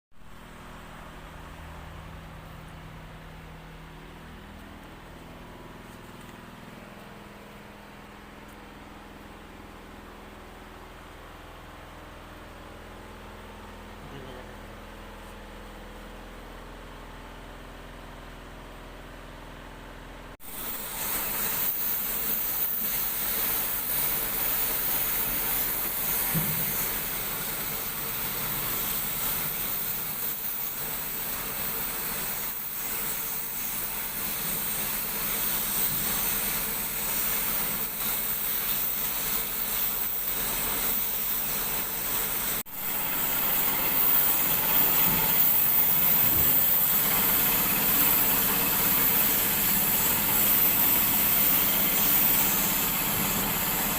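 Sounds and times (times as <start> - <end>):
steady hissing noise: 20.4 - 53.9.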